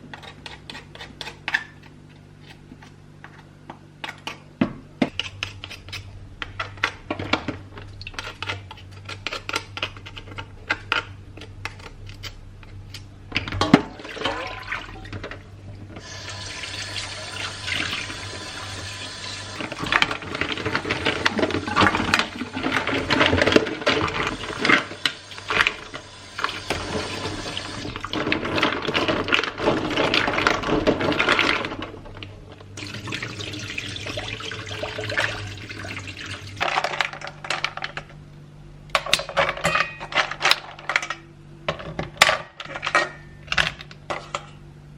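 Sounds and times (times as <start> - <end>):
kitchen items clattering: 19.5 - 25.0, 25.6 - 32.3.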